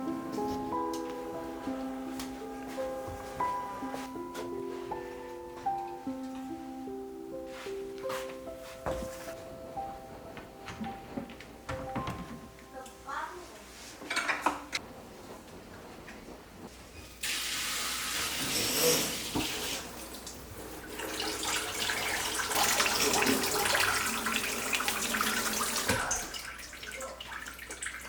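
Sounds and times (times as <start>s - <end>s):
tap water splashing into sink: 19.2s - 28.0s.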